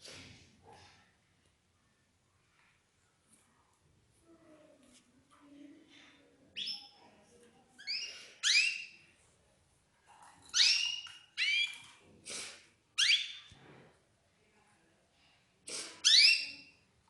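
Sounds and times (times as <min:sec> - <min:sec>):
canaries chirping: 0:06.6 - 0:07.0, 0:07.8 - 0:09.1, 0:10.5 - 0:12.0, 0:13.0 - 0:13.5, 0:16.0 - 0:16.8.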